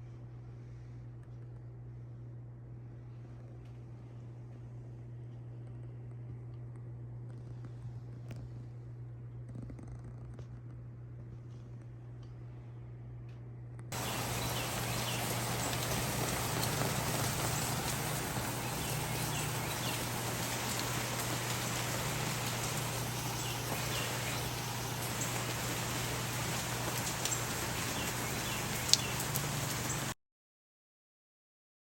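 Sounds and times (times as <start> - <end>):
steady rain falling: 13.9 - 30.2
drip taps: 14.0 - 30.1.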